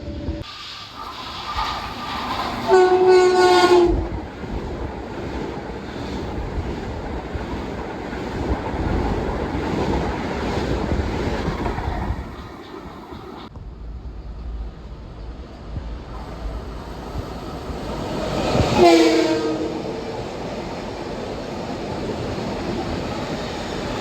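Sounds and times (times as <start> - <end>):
train rumbling on rails: 0.0 - 24.0
train horn blast: 2.7 - 4.2, 18.1 - 20.2.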